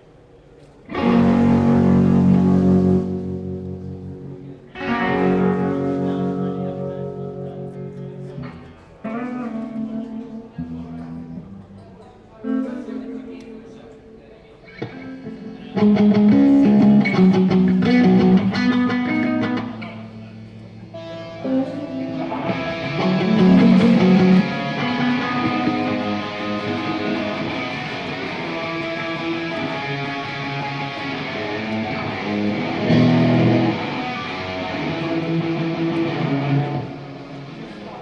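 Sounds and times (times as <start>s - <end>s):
amplified electric guitars: 0.7s - 11.8s, 12.4s - 38.0s
bass guitar playing: 0.9s - 11.3s, 14.9s - 37.9s.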